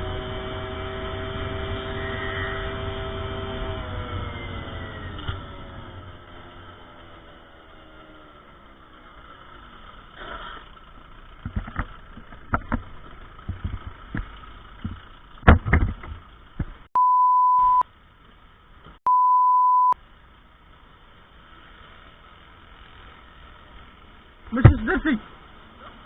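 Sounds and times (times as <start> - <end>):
engine and traffic: 0.0 - 26.0
censor bleeps: 17.0 - 17.8, 19.1 - 20.0.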